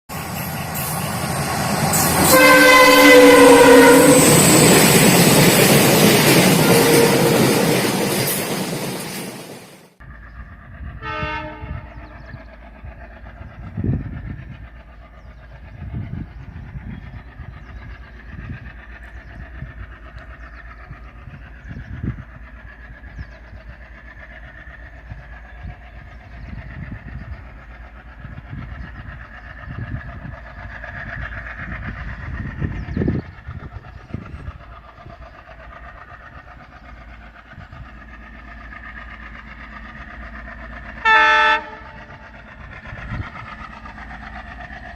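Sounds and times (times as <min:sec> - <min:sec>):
freight train rumbling: 0:00.1 - 0:44.9
locomotive horn blast: 0:02.0 - 0:04.6, 0:06.5 - 0:07.7, 0:11.0 - 0:12.0, 0:41.0 - 0:42.0.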